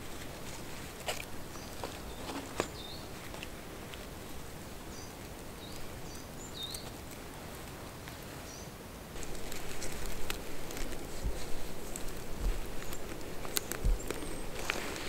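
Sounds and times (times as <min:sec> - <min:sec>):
steady outdoor hiss: 0:00.0 - 0:15.0
small bird chirping: 0:01.4 - 0:03.4, 0:04.8 - 0:07.1, 0:08.4 - 0:15.0
hands working a cord: 0:09.2 - 0:15.0.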